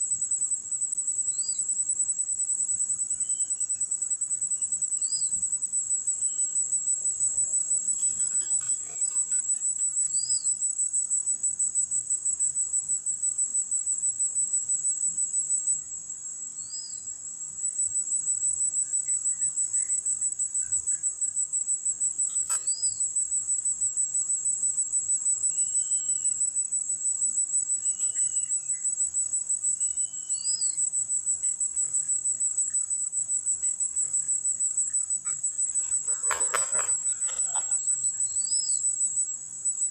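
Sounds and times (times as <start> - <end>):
pulsing insect drone: 0.0 - 39.9.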